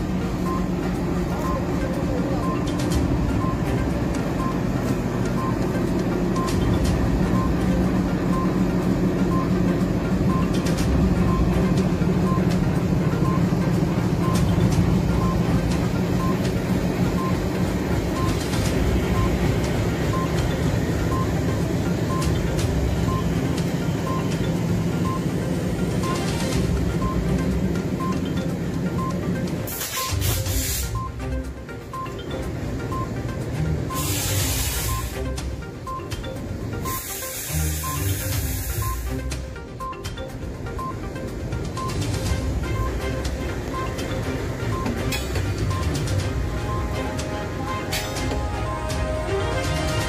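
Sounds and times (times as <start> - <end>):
locomotive engine rumble: 0.0 - 36.9.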